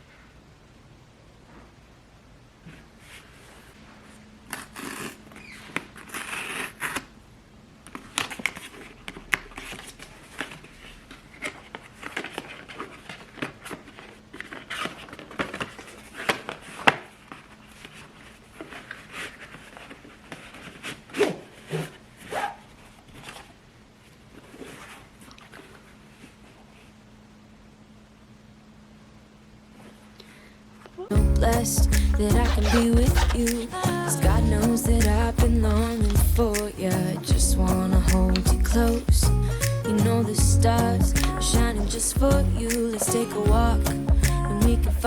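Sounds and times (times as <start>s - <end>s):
paper rustling and tearing: 4.4s - 7.1s, 8.0s - 23.6s.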